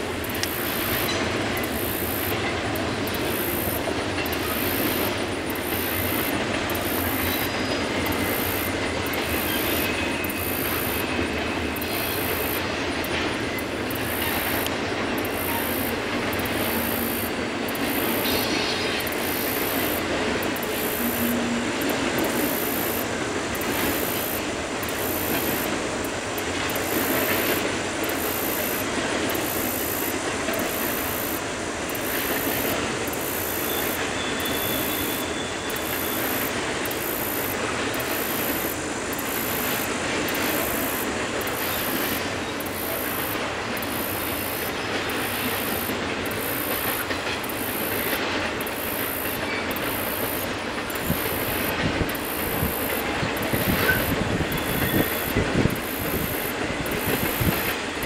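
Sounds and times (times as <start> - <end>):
wheels rumbling on rail: 0.0 - 58.0
high wheel squeal: 18.1 - 19.6, 33.4 - 36.5, 53.4 - 56.3.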